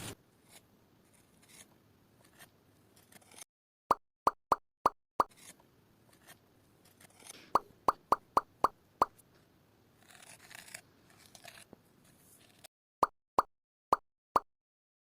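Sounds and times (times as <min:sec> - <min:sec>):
plop sound effects: 0:07.6 - 0:08.8, 0:13.0 - 0:14.5.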